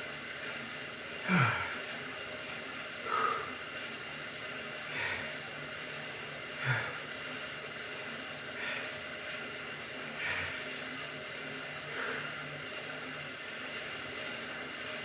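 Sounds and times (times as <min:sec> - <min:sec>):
man breathing hard: 0:01.2 - 0:01.9, 0:03.0 - 0:03.7, 0:04.8 - 0:05.5, 0:06.5 - 0:07.2, 0:08.5 - 0:09.3, 0:10.1 - 0:10.8, 0:11.9 - 0:12.4.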